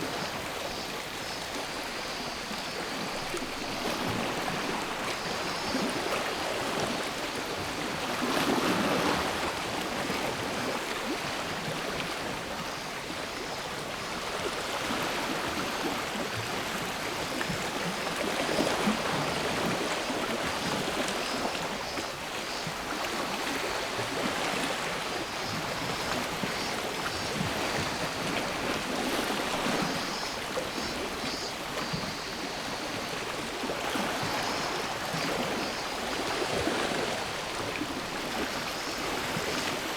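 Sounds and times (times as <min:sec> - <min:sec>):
pulsing cicada song: 0:00.0 - 0:06.3, 0:19.0 - 0:23.7, 0:24.8 - 0:37.5, 0:38.2 - 0:39.9
small waves washing onto shore: 0:00.0 - 0:39.9.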